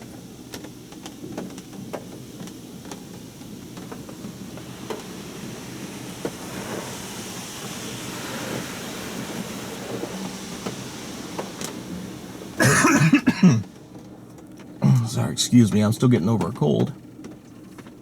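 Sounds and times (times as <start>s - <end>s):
car wash spraying water: 0.0s - 18.0s
person coughing: 12.6s - 13.7s.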